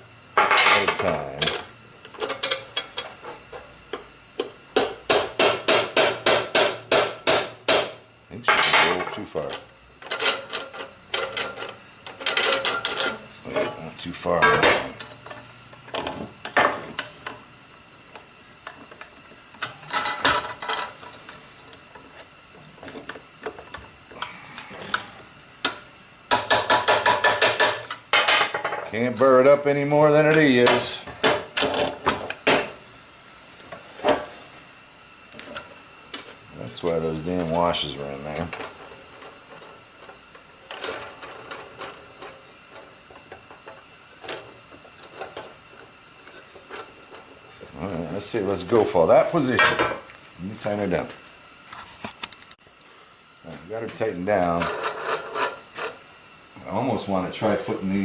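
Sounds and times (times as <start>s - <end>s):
metal parts clicking and scraping: 8.6s - 13.8s.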